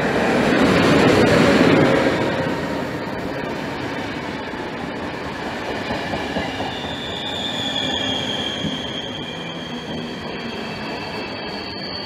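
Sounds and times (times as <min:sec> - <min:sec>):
train wheels rumbling on rail: 0:00.0 - 0:12.0
high wheel squeal: 0:06.3 - 0:12.0.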